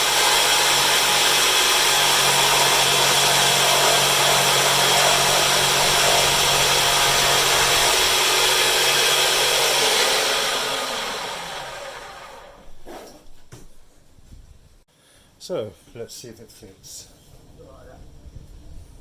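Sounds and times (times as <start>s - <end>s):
bandsaw motor running: 0.0s - 12.7s.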